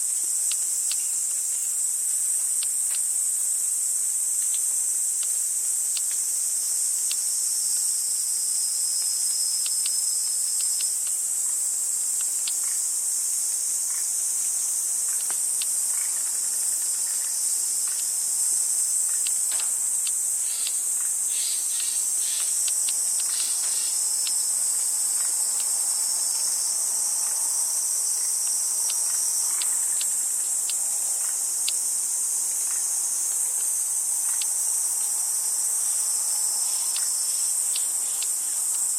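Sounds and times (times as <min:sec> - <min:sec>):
faint ticks and chirps: 0:00.0 - 0:38.9
insects chorus: 0:00.0 - 0:38.9.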